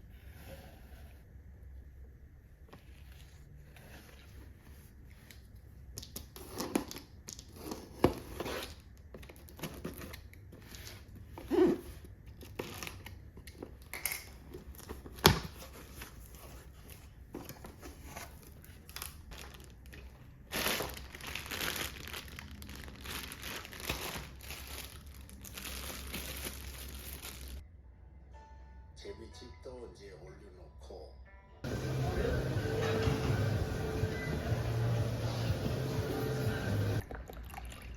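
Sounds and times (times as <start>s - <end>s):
packaging rustling: 14.4s - 27.6s
packaging crinkling and tearing: 17.9s - 27.6s.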